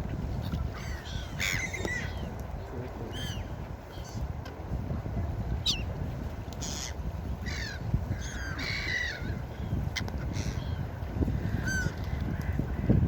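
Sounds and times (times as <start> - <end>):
gulls calling: 0.4 - 2.4, 3.0 - 4.3, 5.6 - 5.9, 6.6 - 13.0.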